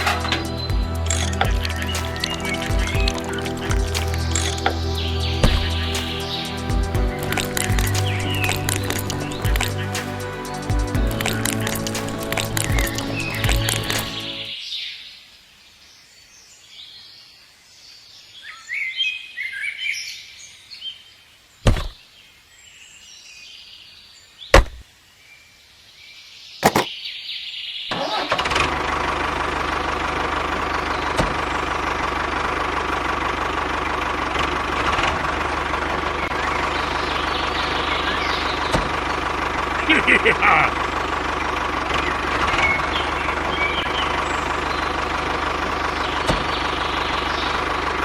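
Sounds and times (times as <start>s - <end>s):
birds chirping faintly: 0.0s - 27.9s.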